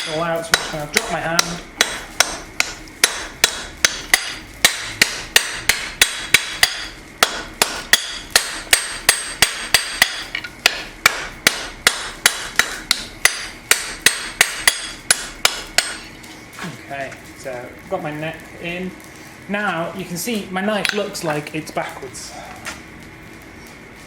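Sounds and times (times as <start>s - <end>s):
hammer striking steel on anvil: 0.0s - 16.0s, 20.8s - 21.1s.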